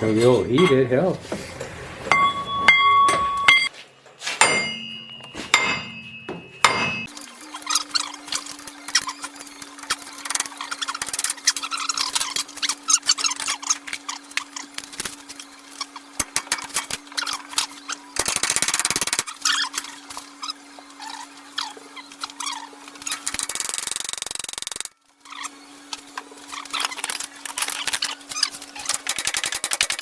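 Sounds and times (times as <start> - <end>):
steady low hum: 4.4 - 18.4
hand tools clicking on metal: 23.0 - 24.9, 26.6 - 30.0.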